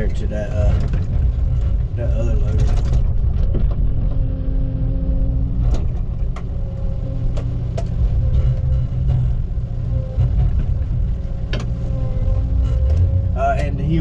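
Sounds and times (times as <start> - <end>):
diesel engine running: 0.0 - 14.0
hydraulic boom tone: 0.5 - 14.0.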